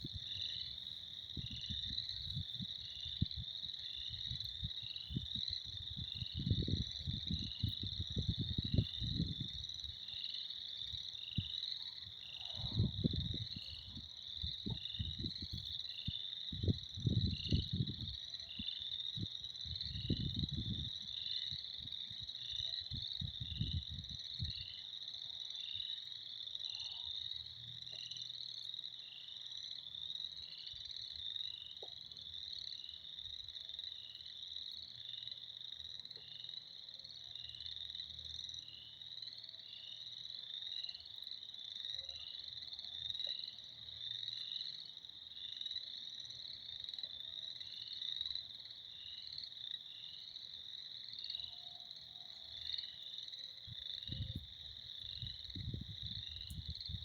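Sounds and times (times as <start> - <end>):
frogs trilling: 0.0 - 57.0
low rumbling gusts: 1.3 - 10.0, 12.6 - 15.6, 16.5 - 18.2, 19.2 - 22.3, 55.2 - 57.0.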